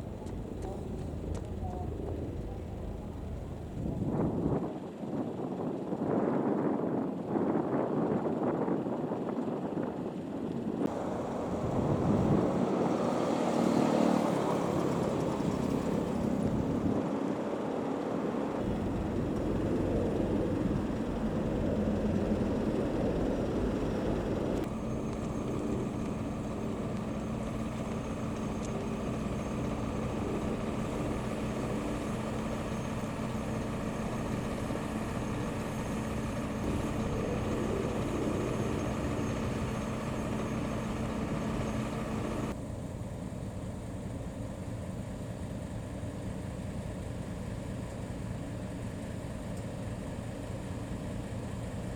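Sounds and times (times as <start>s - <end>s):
street noise: 0.0s - 4.6s, 10.9s - 42.6s
vehicle engines idling: 0.0s - 4.6s, 10.5s - 51.9s.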